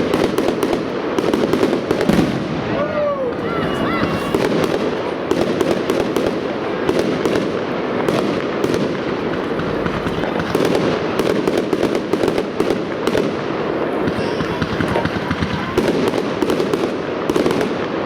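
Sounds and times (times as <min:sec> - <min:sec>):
fireworks bangs and crackling: 0:00.0 - 0:18.0
continuous rumble: 0:08.0 - 0:11.7.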